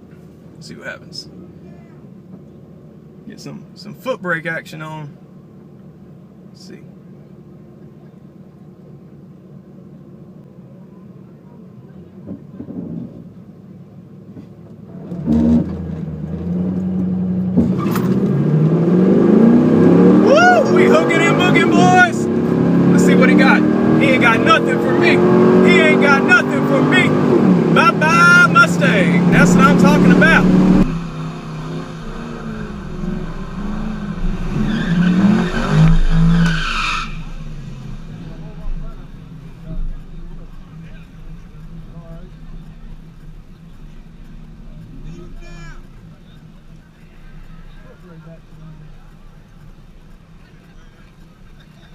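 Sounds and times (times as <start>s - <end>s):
drag car engine accelerating: 11.8s - 51.9s.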